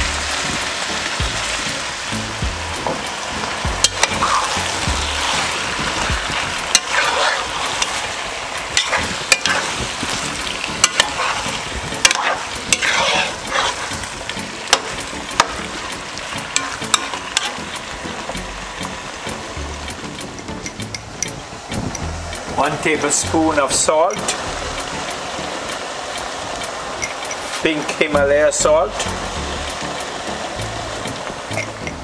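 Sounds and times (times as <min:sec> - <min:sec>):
food sizzling in hot oil: 0:00.0 - 0:32.0
spoon stirring swishes: 0:06.3 - 0:08.1, 0:08.7 - 0:15.0
metal spoon clicking on pot: 0:20.3 - 0:22.1, 0:31.5 - 0:32.0.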